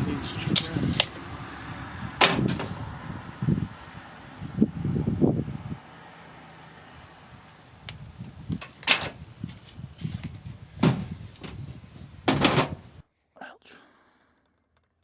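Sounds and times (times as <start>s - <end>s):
materials knocking and thumping: 10.8s - 11.6s, 12.2s - 12.8s.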